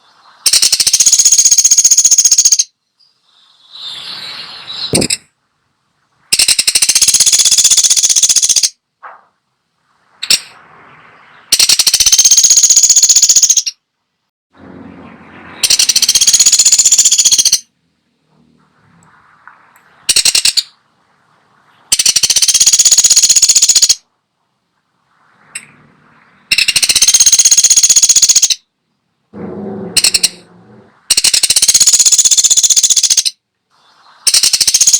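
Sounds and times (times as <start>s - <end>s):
woodpecker rapid high trills: 0.4s - 2.8s, 6.3s - 8.8s, 11.4s - 13.8s, 15.1s - 17.7s, 20.1s - 20.8s, 21.9s - 24.0s, 26.3s - 28.6s, 29.4s - 33.4s, 34.3s - 34.9s.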